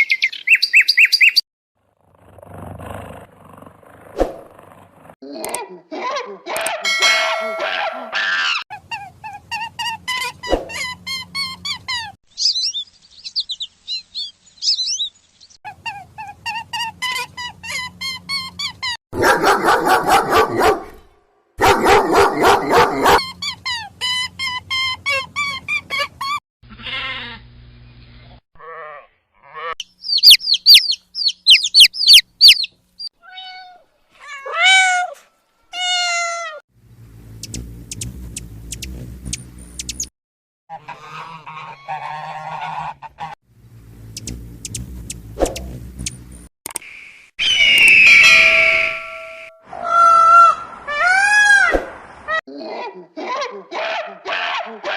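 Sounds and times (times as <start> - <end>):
birds calling: 29.8 - 33.1.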